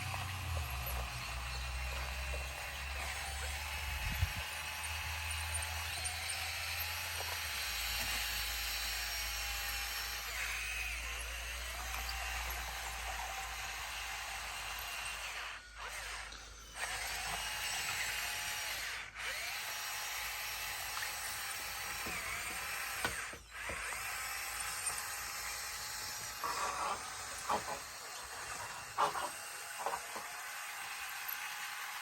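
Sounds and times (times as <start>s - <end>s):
bulldozer engine whining: 0.0s - 19.7s.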